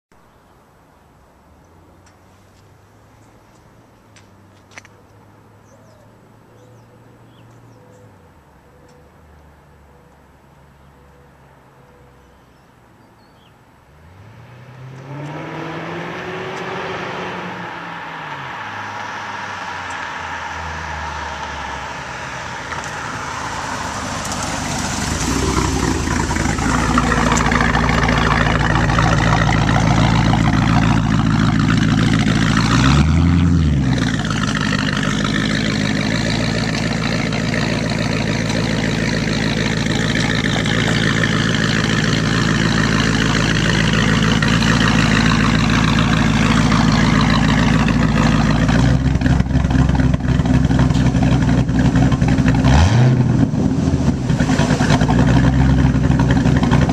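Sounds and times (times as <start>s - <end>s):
car engine running and revving: 14.0s - 56.9s.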